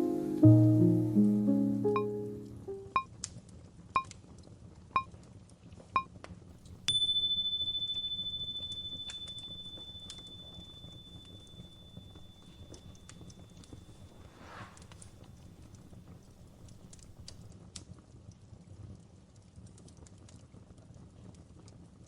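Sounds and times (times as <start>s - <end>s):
countdown timer beeps: 1.8s - 3.1s
fireplace crackling: 6.6s - 17.5s
long high beep: 6.9s - 13.6s.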